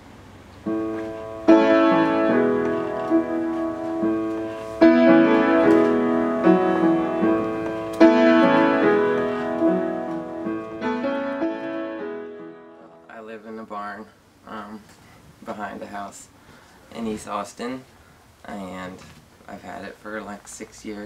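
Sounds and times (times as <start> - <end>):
piano playing slow chords: 0.6 - 13.2.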